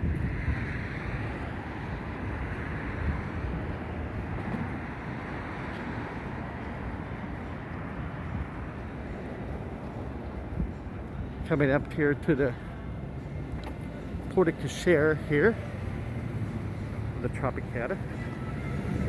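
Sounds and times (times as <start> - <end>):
wind rumbling on microphone: 0.0 - 11.4
street traffic passing: 0.0 - 19.0.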